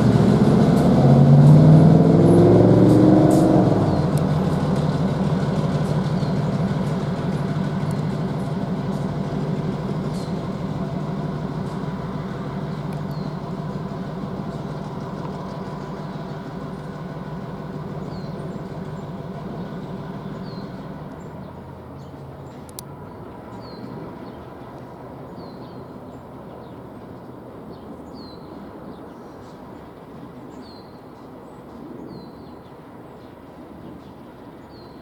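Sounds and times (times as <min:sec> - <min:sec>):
diesel locomotive engine drone: 0:00.0 - 0:35.0.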